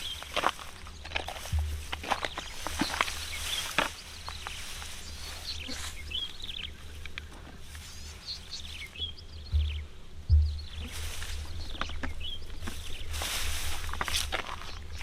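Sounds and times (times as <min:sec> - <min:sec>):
small birds chirping: 0:00.0 - 0:15.0
low rumble: 0:09.0 - 0:15.0.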